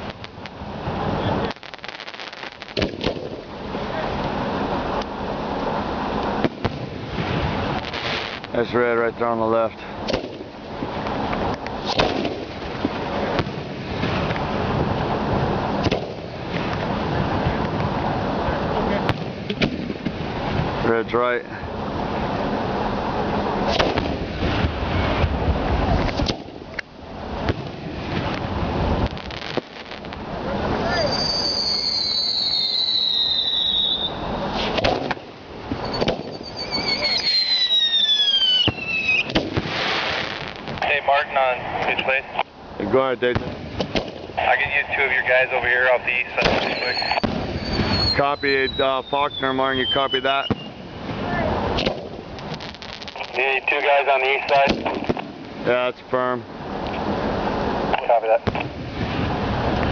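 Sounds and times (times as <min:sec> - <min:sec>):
fireworks bangs: 0:00.0 - 0:20.9, 0:22.0 - 0:42.2, 0:43.2 - 0:55.8, 0:57.0 - 0:59.9
rumble of booms: 0:10.0 - 0:20.8, 0:21.7 - 0:31.3, 0:46.0 - 0:53.4
firework whistles falling in pitch: 0:30.8 - 0:34.2, 0:35.8 - 0:40.2, 0:46.4 - 0:50.8.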